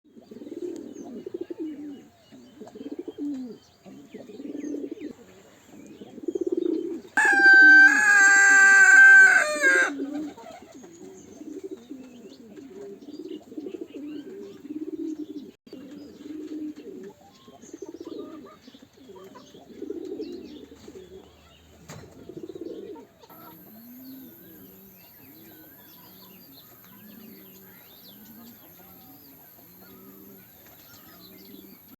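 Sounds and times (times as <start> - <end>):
pigeons cooing: 0.1 - 31.9.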